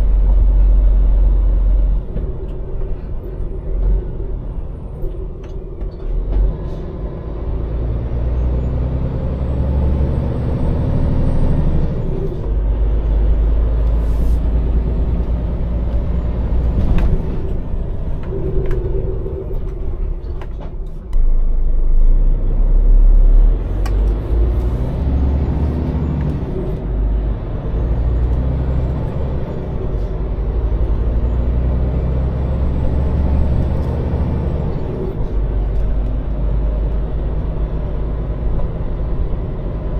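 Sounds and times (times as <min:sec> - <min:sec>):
lorry diesel engine running: 0:00.0 - 0:39.9.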